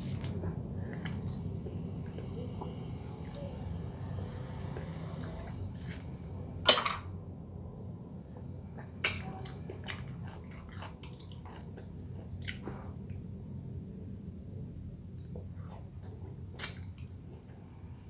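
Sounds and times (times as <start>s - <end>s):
person chewing: 0.0s - 6.4s, 8.3s - 13.3s, 15.1s - 17.6s
low steady hum: 0.0s - 18.0s.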